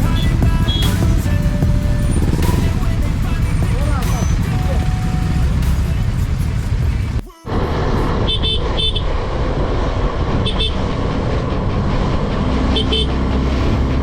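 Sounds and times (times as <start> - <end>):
engines running in traffic: 0.0 - 14.0
vehicle horns beeping: 8.2 - 9.0, 10.4 - 10.8, 12.7 - 13.3.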